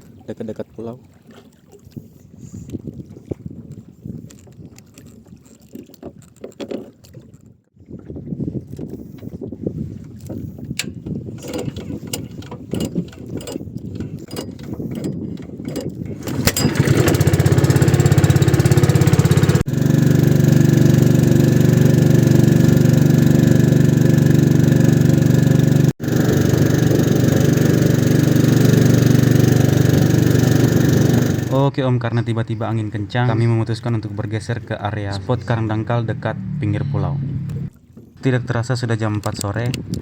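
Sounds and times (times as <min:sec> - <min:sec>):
boat hull slapping in choppy water: 0:00.0 - 0:31.6
boat engine running: 0:10.9 - 0:31.6, 0:33.8 - 0:37.9.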